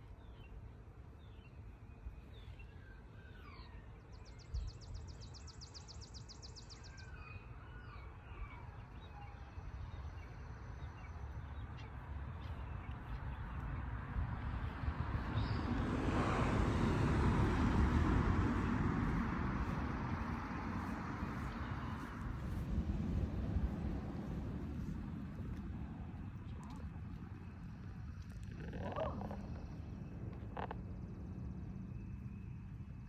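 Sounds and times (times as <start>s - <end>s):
wild birds chirping: 0.0s - 33.0s
low rumble: 10.4s - 33.0s.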